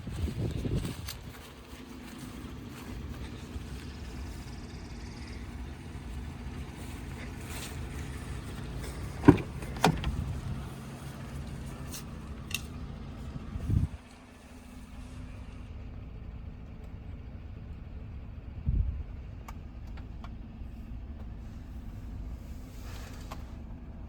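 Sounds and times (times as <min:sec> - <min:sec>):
pickup truck idling: 0:00.0 - 0:18.4
sharp clunks: 0:08.9 - 0:10.4
heavy thump: 0:09.0 - 0:10.4.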